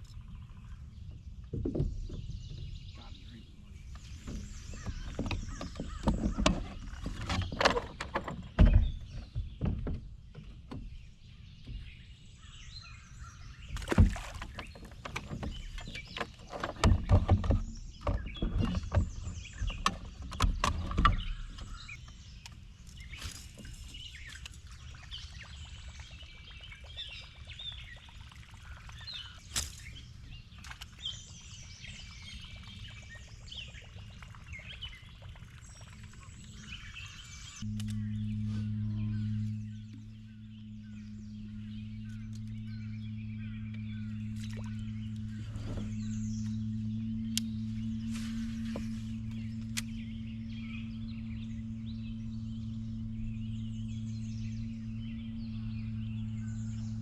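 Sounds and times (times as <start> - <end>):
birds chirping: 0.0 - 57.0
knocks and thumps on a boat: 1.0 - 12.2, 13.7 - 22.0.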